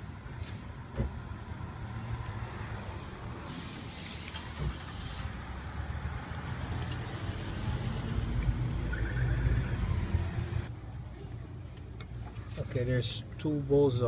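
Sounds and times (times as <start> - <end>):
vehicle engine rumble: 0.0 - 12.6.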